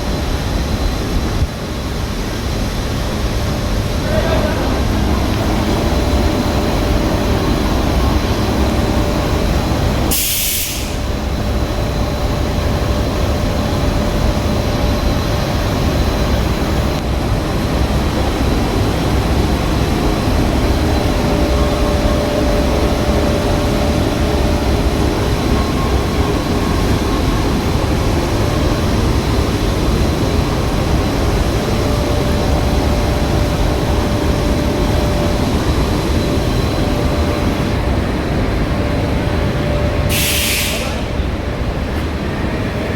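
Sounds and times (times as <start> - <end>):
short sharp hiss: 10.1 - 11.0, 40.1 - 41.0.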